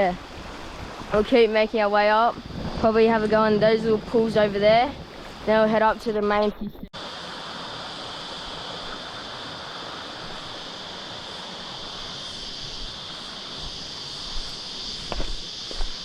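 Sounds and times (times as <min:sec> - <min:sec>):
high-pitched insect chorus: 0:00.0 - 0:16.0
water rushing over rapids: 0:07.0 - 0:14.8.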